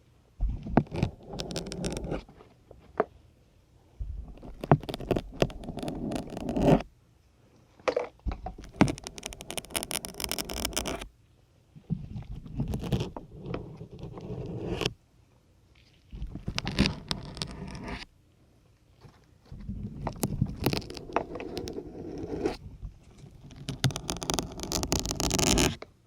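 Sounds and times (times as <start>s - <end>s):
syringes scraping out of sponge: 0.8s - 2.2s, 4.4s - 6.8s, 8.6s - 11.0s, 16.3s - 18.0s, 20.0s - 22.6s, 23.2s - 25.8s.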